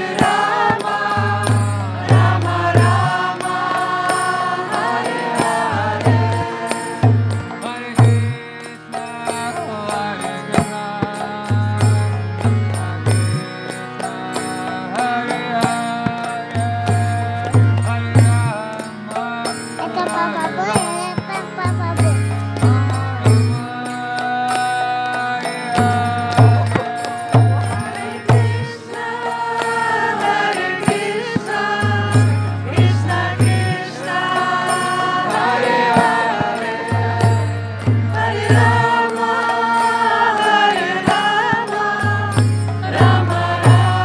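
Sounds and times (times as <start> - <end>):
voices chanting in song: 0.0 - 8.1, 25.8 - 44.0.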